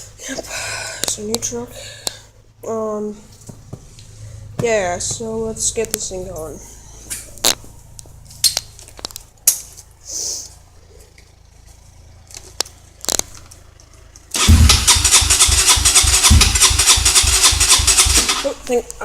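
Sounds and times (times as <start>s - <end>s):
dirt bike engine chugging: 10.1s - 18.9s
scattered clicks and knocks: 12.3s - 18.4s.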